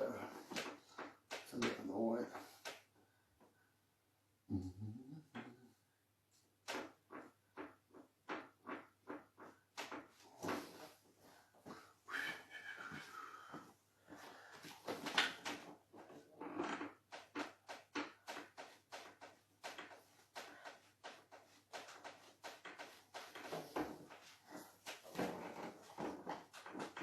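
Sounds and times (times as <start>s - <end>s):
hands knocking and rubbing on back: 6.6s - 27.0s.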